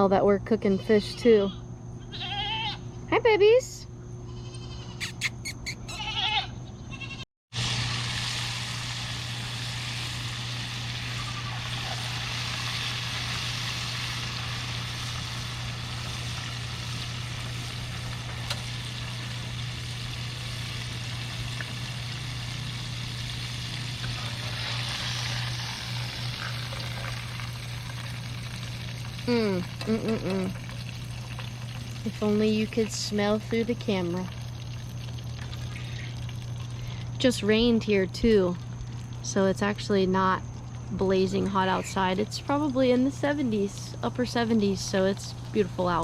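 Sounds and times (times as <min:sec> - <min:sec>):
constant low hum: 0:00.0 - 0:46.0
goat bleating: 0:02.0 - 0:02.8, 0:04.3 - 0:07.2
fish frying in fat: 0:07.5 - 0:46.0.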